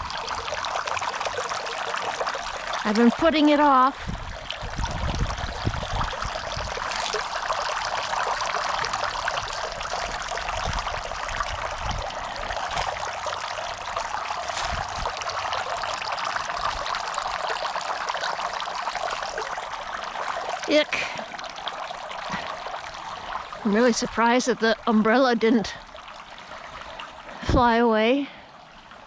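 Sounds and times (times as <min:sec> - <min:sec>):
fountain water trickling and splashing: 0:00.0 - 0:29.0
wind buffeting microphone: 0:02.8 - 0:07.5, 0:08.2 - 0:13.2, 0:14.4 - 0:17.3.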